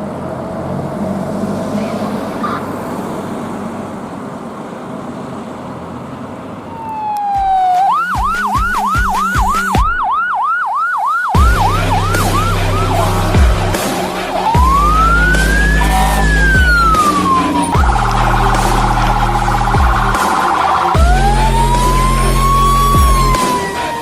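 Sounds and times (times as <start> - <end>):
fire engine rumble: 0.0 - 8.5, 11.4 - 24.0
electronic siren yelping: 6.7 - 24.0
low air horn blast: 11.4 - 24.0.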